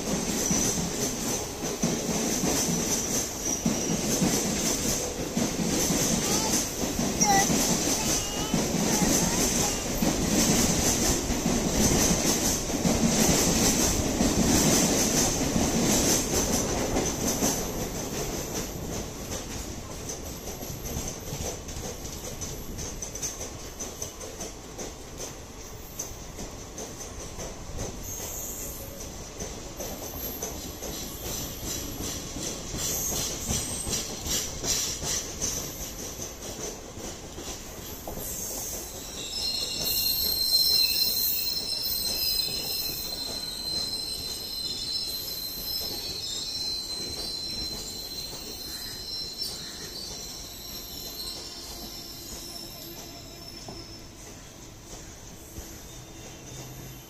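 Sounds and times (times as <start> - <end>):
train wheels rumbling on rails: 0.0 - 57.0
high-pitched wheel squeal: 39.2 - 54.1.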